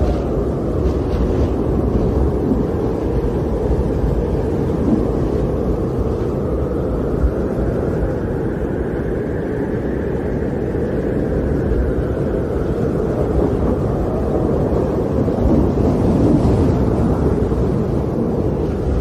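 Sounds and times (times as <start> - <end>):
high wind whistle: 0.0 - 19.0
storm wind blowing: 0.0 - 19.0.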